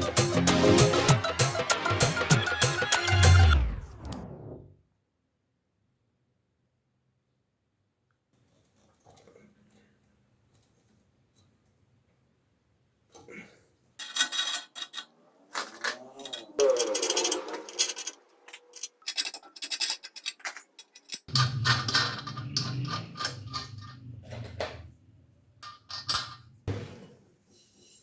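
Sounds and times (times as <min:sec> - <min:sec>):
metal parts clicking and scraping: 0:14.0 - 0:25.0, 0:25.6 - 0:26.6.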